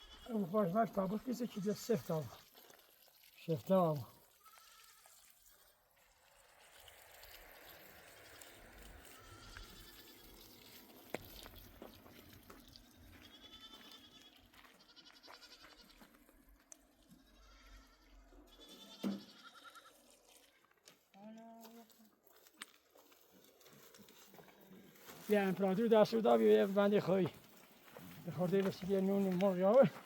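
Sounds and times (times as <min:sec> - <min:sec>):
sheep and goats bleating: 0:00.0 - 0:02.4, 0:04.0 - 0:05.8, 0:09.0 - 0:10.4, 0:12.8 - 0:16.3, 0:17.0 - 0:22.0.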